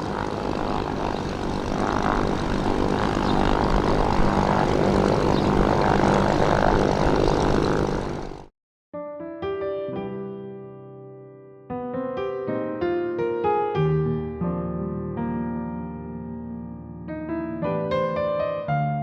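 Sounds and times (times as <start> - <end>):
helicopter engines and rotor: 0.0 - 8.5
soft piano music: 9.0 - 19.0.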